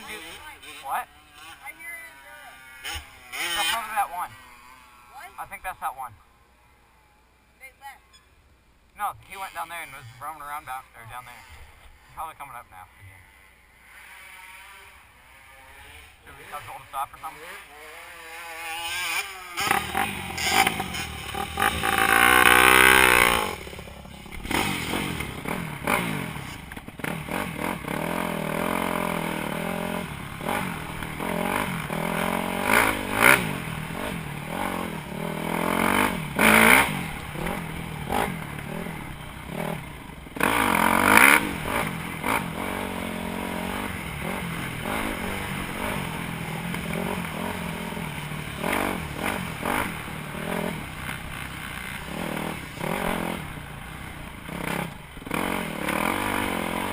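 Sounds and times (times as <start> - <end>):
dirt bike engine revving: 0.0 - 7.2, 9.0 - 56.9.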